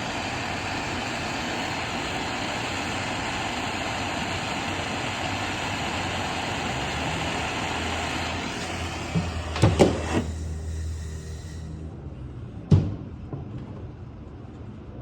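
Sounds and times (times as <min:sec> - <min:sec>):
steady rushing hiss: 0:00.0 - 0:11.8
low hum: 0:00.0 - 0:12.6.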